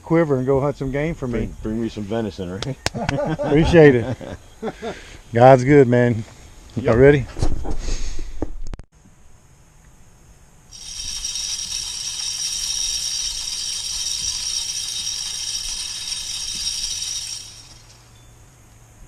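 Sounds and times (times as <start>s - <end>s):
insect buzzing: 9.2s - 18.3s.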